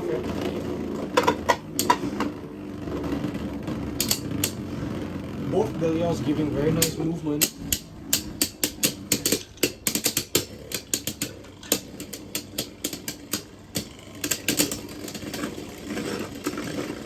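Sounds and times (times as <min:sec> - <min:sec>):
spinning tops clashing: 0:06.7 - 0:17.0.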